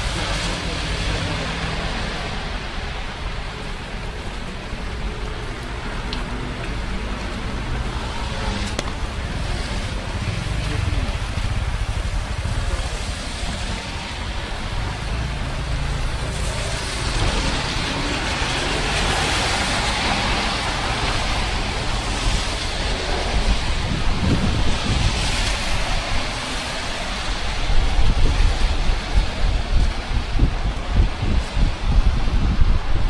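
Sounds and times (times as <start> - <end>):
rain hiss: 0.0 - 33.0
traffic rumble: 0.0 - 33.0.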